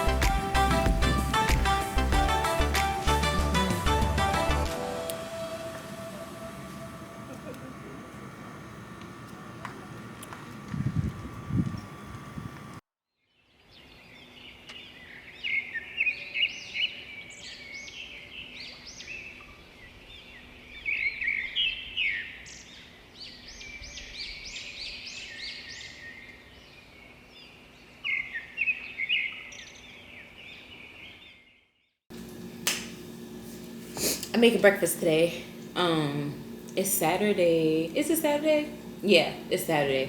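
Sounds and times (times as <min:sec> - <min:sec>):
birds chirping and singing: 0:13.4 - 0:31.5.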